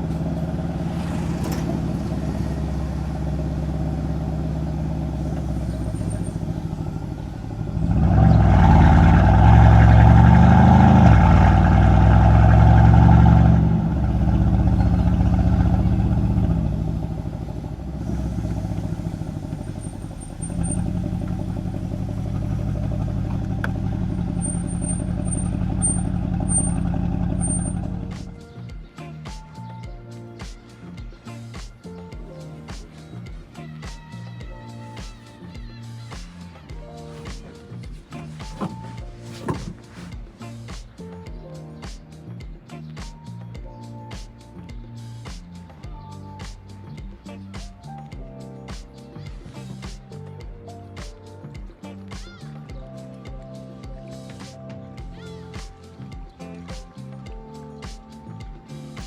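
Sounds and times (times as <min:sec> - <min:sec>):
car exhaust droning: 0:00.0 - 0:28.4, 0:36.0 - 0:40.2.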